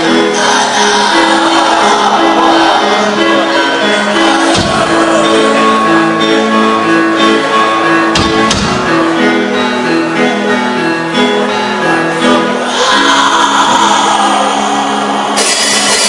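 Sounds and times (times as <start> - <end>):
heavy low hit: 4.5 - 5.4
metal band playing live: 15.4 - 16.0.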